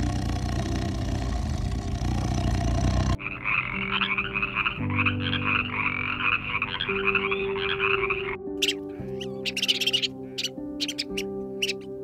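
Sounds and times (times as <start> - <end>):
low rumbling: 0.0 - 3.2
frogs calling: 2.4 - 12.0.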